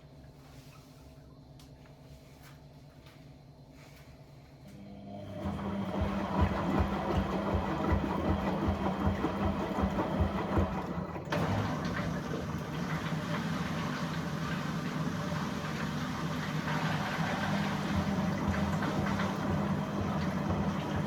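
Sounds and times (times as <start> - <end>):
washing machine motor churning: 4.7 - 21.0.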